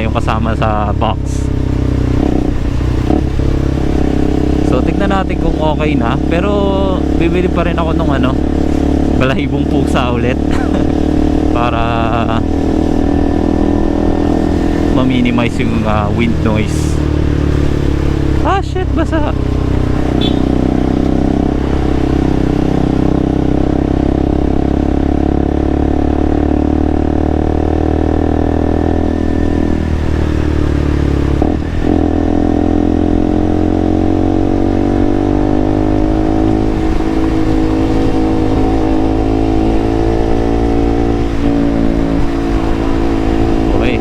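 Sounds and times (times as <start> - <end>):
motorcycle engine running: 0.0 - 44.0
wind rumble on microphone: 34.3 - 44.0.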